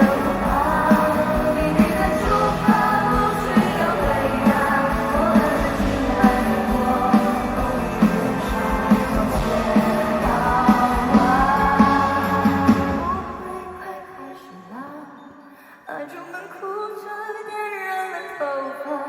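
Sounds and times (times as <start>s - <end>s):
woman singing over band: 0.0s - 15.2s.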